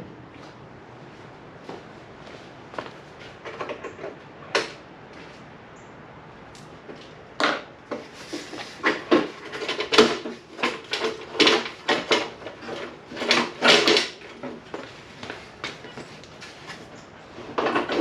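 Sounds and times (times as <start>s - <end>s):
car body parts clunking and scraping: 2.7s - 5.4s, 6.8s - 18.0s.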